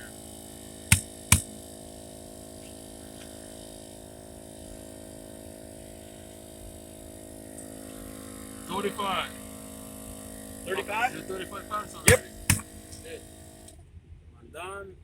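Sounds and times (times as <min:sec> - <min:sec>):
tire inflator humming: 0:00.0 - 0:13.8
sharp clicks: 0:00.9 - 0:01.5.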